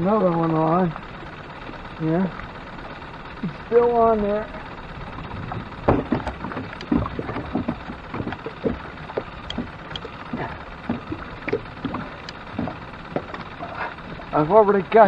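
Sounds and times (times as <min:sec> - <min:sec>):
water splashing: 0:00.9 - 0:14.6
knocking in a boat: 0:05.1 - 0:14.3.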